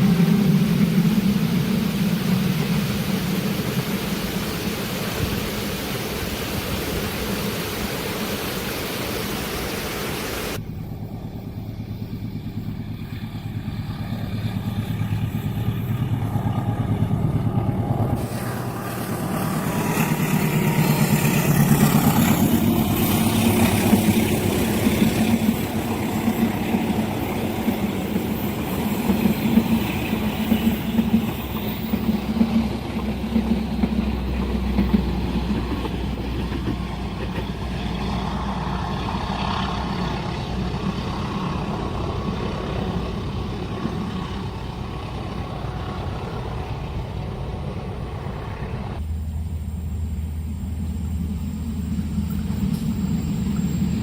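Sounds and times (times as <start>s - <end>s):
vehicle engines idling: 10.5s - 28.6s, 30.7s - 54.0s.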